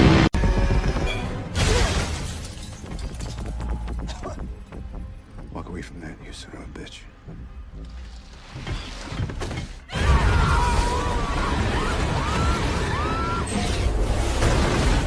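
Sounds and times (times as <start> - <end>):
people screaming: 9.9 - 13.9.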